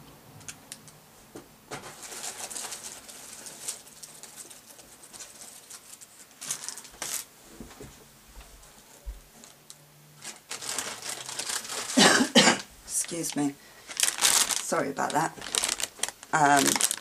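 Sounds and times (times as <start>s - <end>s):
plastic packets rustling and crinkling: 1.7s - 7.8s, 10.2s - 17.0s.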